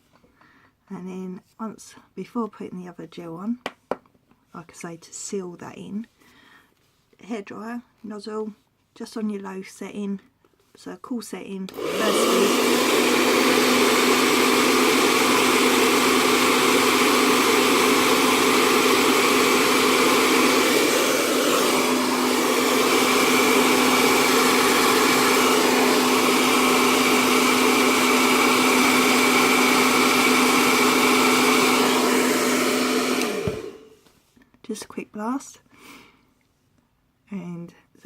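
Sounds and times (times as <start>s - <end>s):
hair dryer running: 11.7s - 34.1s.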